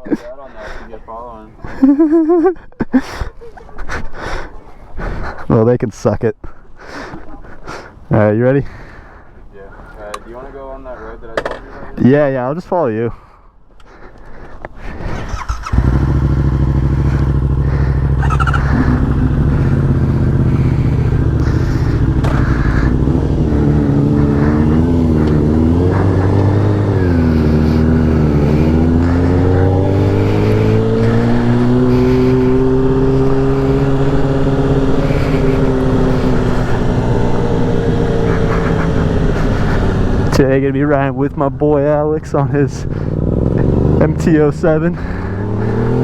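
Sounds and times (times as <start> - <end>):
motorcycle engine revving: 14.8 - 46.0.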